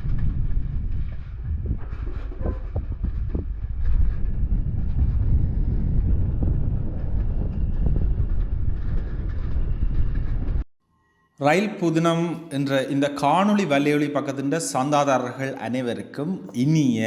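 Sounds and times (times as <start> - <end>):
train rumbling with clanking: 0.0 - 10.6.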